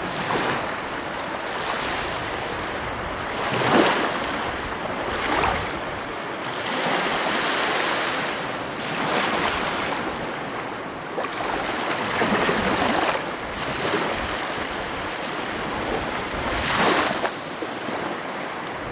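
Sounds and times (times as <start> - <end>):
wind noise on microphone: 0.0 - 7.4, 11.4 - 18.9
ocean waves breaking: 0.0 - 18.9.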